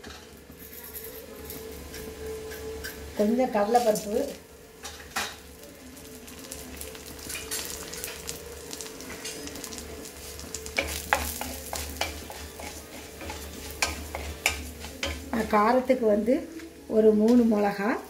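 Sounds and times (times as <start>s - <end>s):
lentils sizzling in hot oil: 0.0s - 18.0s
wooden spatula scraping a pan: 10.2s - 15.6s.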